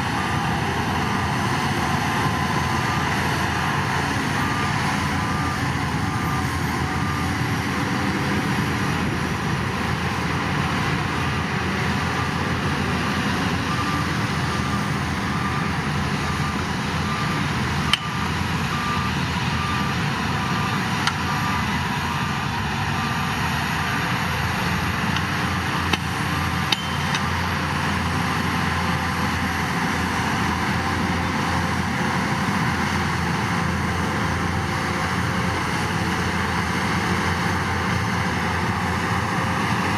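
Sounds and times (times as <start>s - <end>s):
reversing alarm beeping: 0.0s - 9.7s, 11.1s - 32.2s
diesel engine running: 0.0s - 39.9s.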